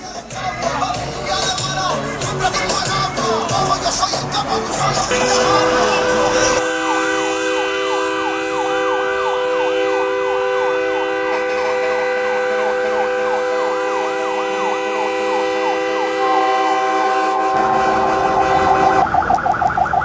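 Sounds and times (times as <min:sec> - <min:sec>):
air horns steady chord: 0:00.0 - 0:19.1
electronic siren yelping: 0:05.0 - 0:16.6, 0:18.3 - 0:20.0.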